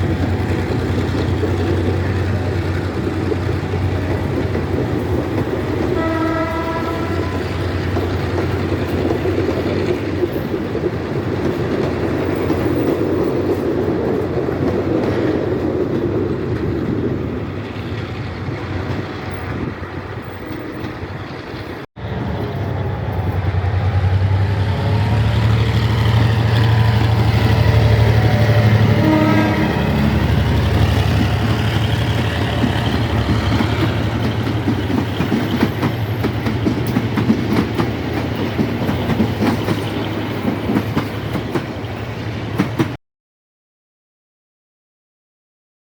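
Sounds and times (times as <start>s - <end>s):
diesel locomotive engine droning: 0.0s - 42.8s
train rumbling past: 0.0s - 43.0s
train horn blast: 5.9s - 7.6s, 26.3s - 30.8s.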